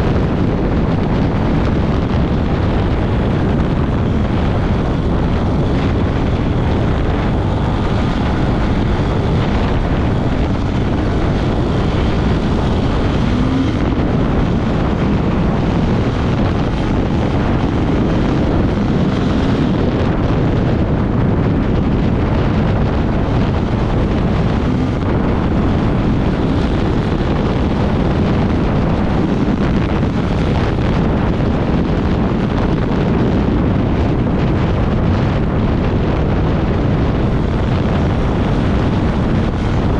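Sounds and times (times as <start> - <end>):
off-road motorcycle engine: 0.0 - 39.9
wind buffeting microphone: 0.0 - 39.9.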